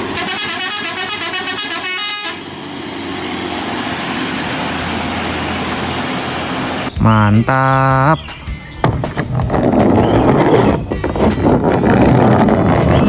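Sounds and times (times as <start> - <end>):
truck horn high notes: 0.0 - 2.5, 7.0 - 8.2
truck passing: 0.0 - 13.0.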